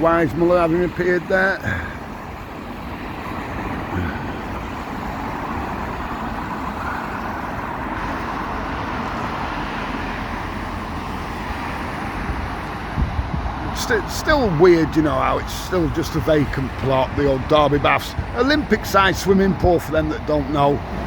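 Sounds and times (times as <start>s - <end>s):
road traffic hiss: 0.0s - 21.0s.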